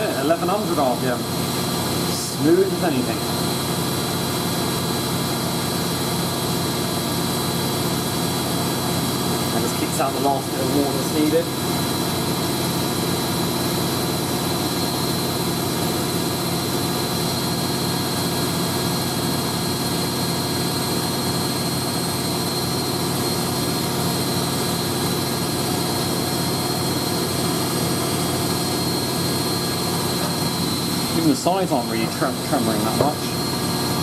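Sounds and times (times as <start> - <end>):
washing machine spinning: 0.0 - 34.0.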